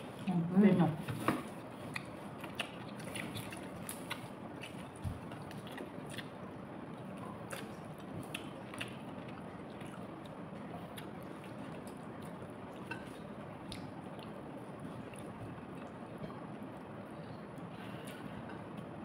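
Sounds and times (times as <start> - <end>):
person chewing wetly: 1.8 - 16.0.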